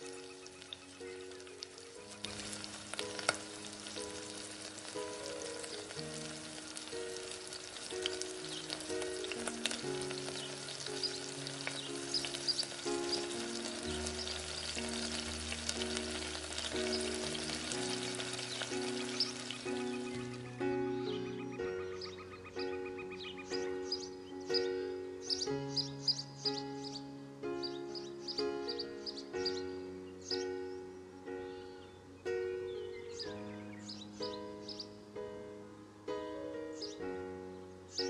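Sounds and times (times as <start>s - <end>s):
onions sizzling in a pan: 0.0s - 20.5s
gentle melody of held notes: 0.0s - 38.0s.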